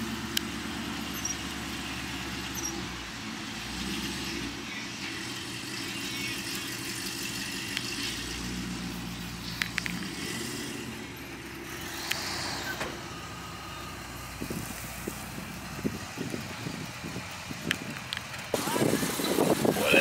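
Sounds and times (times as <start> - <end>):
car engine idling: 0.0 - 20.0
sharp clicks: 9.4 - 10.2.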